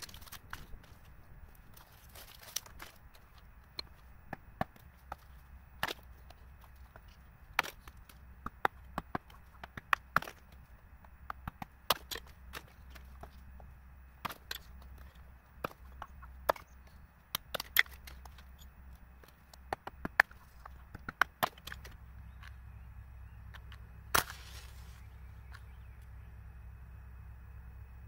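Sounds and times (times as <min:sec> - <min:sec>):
sharp woody knocks and cracks: 0:00.0 - 0:22.6, 0:23.5 - 0:24.8
long rasping crack: 0:24.1 - 0:25.0.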